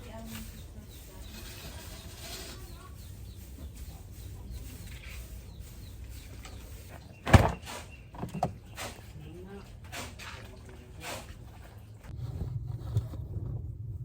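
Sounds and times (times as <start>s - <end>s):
low steady rumble: 12.0s - 14.0s.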